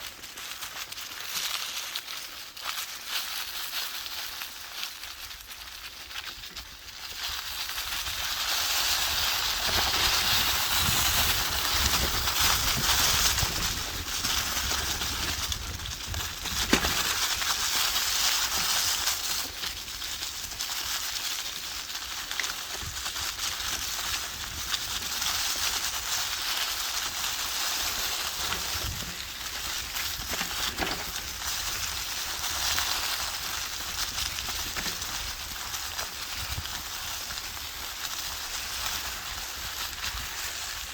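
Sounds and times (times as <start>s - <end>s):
wind through leaves: 0.0s - 40.9s
wind rumble on microphone: 7.1s - 21.1s, 22.7s - 40.9s.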